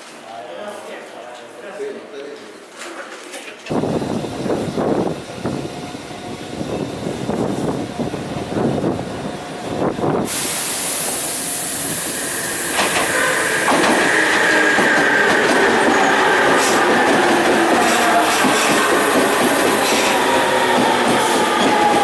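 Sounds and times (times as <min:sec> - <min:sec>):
train rumbling: 0:03.7 - 0:22.0
sudden hiss: 0:10.2 - 0:14.8
steady high squeal: 0:11.4 - 0:22.0.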